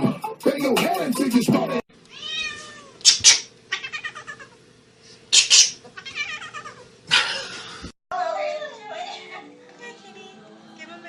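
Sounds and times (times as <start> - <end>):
cat meowing and yowling: 2.1 - 2.9, 6.0 - 6.8.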